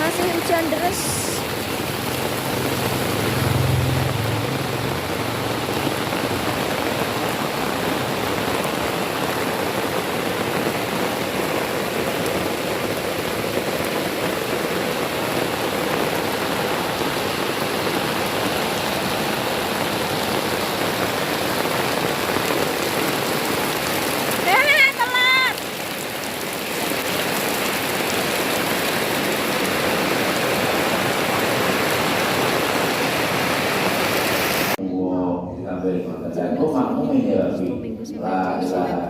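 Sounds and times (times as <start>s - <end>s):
heavy rain pouring: 0.0s - 34.8s.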